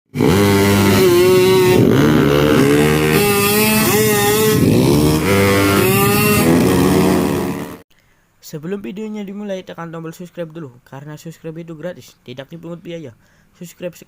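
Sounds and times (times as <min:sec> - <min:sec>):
motorcycle engines revving: 0:00.1 - 0:07.8.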